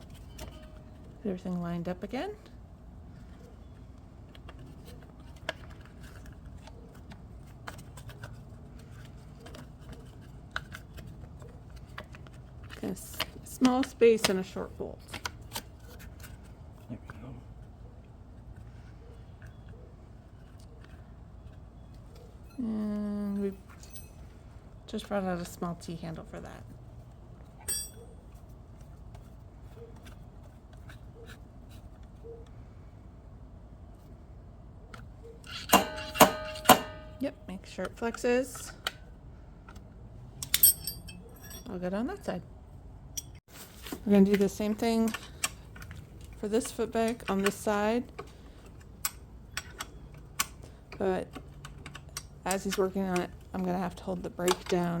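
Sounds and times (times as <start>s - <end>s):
metal tool clinking on metal: 23.8s - 24.2s, 27.6s - 28.0s, 35.5s - 37.3s, 40.4s - 41.8s, 43.2s - 43.4s.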